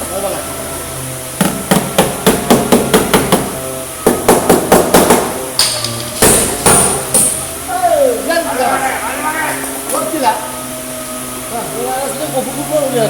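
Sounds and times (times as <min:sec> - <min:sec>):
hammer striking sheet metal: 0:01.4 - 0:07.4.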